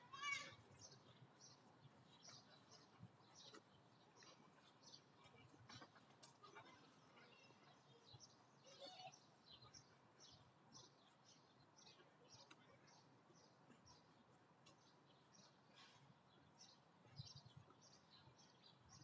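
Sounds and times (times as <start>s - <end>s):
small bird calls: 0.0s - 19.0s.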